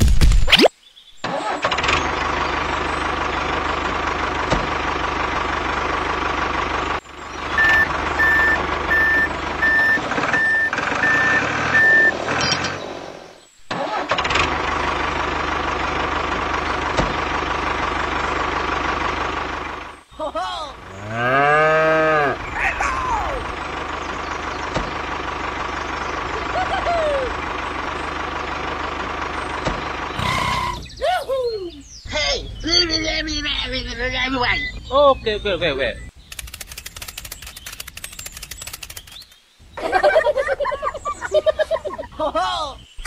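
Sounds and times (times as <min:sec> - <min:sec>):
tractor engine running: 0:01.2 - 0:31.0, 0:31.8 - 0:42.1
reversing beeps: 0:07.6 - 0:12.2
cow mooing: 0:20.8 - 0:22.7.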